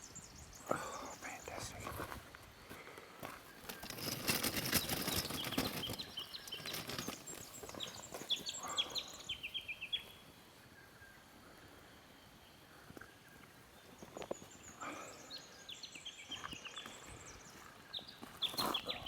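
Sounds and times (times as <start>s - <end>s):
bird chirping: 0.0s - 2.2s, 3.2s - 11.4s, 12.3s - 19.0s
dense rustling and clicking: 3.6s - 8.4s.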